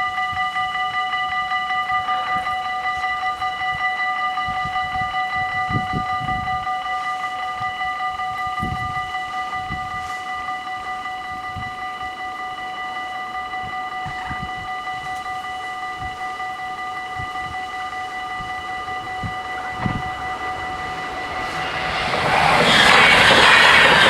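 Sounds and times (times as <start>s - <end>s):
level crossing warning bells: 0.0s - 24.0s
rush of approaching train: 16.8s - 24.0s
low thumps: 18.4s - 24.0s.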